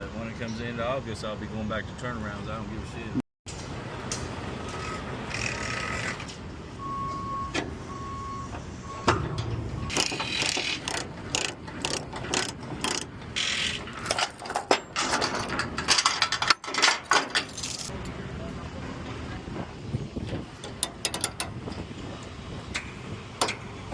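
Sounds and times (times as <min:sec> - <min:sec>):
truck engine rumble: 0:00.0 - 0:23.9
sharp clicks and knocks: 0:09.0 - 0:13.3, 0:20.6 - 0:21.8.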